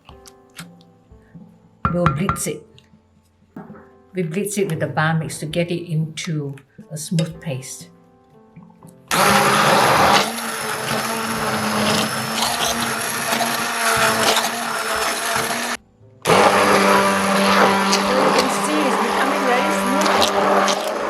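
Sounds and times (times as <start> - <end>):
stick blender motor running: 9.1 - 21.0.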